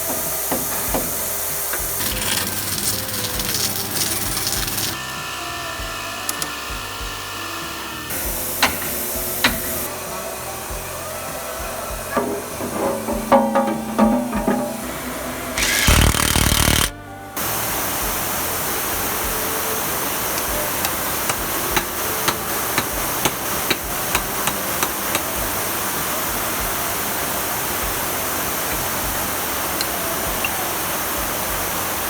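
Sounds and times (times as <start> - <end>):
loud tool burst: 0.0 - 5.1, 8.1 - 10.2, 12.2 - 17.8
steady hiss: 0.0 - 32.0.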